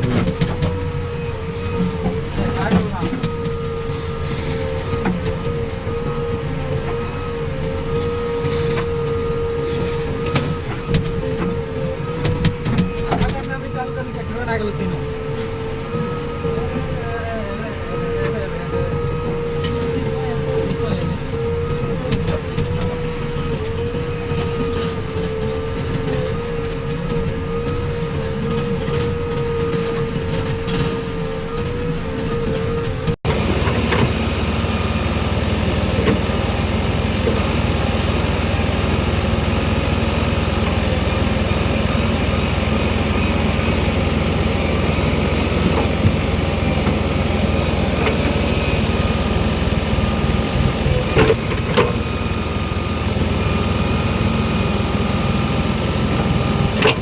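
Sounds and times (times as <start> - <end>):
diesel engine running: 0.0 - 57.0
knocks and clanks: 45.2 - 48.6.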